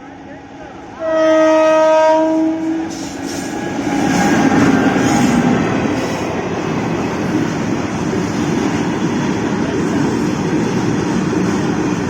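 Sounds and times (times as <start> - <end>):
train horn: 1.0 - 3.2
train wheels rumbling on rails: 1.7 - 12.0.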